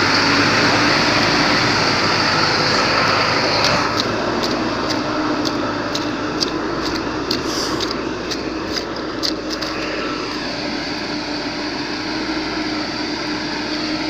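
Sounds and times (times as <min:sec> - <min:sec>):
low hum: 0:00.0 - 0:13.8
vehicle engine and road noise: 0:00.0 - 0:14.0
sharp ticks: 0:03.6 - 0:09.9.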